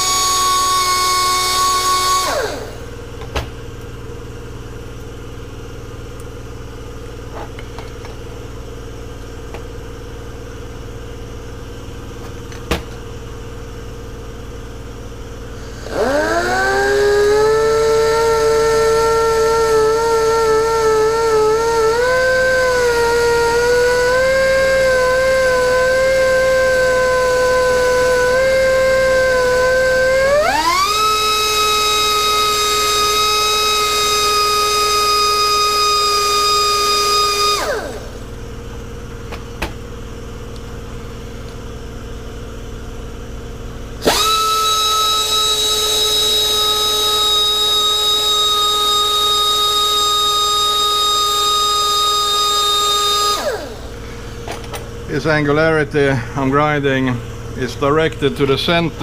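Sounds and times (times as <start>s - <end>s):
air die grinder whining: 0.0s - 3.4s, 15.4s - 38.5s, 43.9s - 59.0s.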